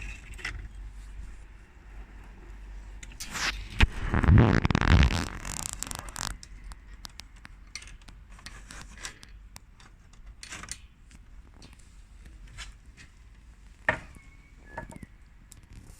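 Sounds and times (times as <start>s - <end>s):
toy pieces clicking and scraping: 4.6s - 9.4s.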